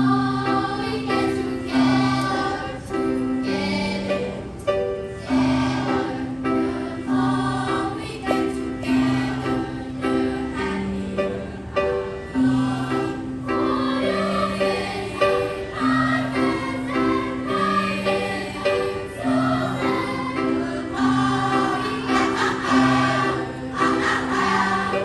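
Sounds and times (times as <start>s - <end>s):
choir singing in harmony: 0.0s - 25.0s.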